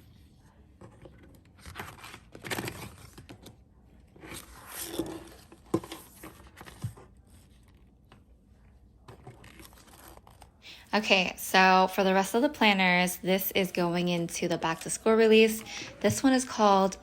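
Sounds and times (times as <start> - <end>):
paper and plastic rustling: 0.8 - 8.2, 9.0 - 10.6.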